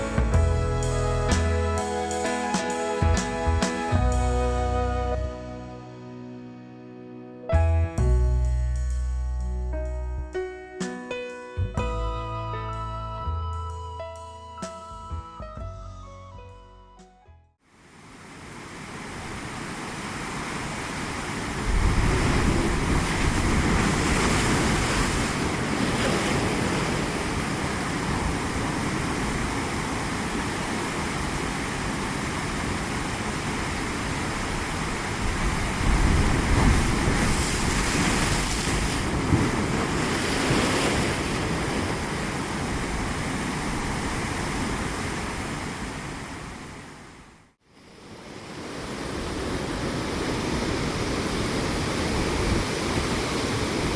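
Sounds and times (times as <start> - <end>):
waves breaking and washing: 0.0 - 5.6, 17.7 - 53.9
wind buffeting microphone: 21.5 - 29.9, 33.8 - 44.9.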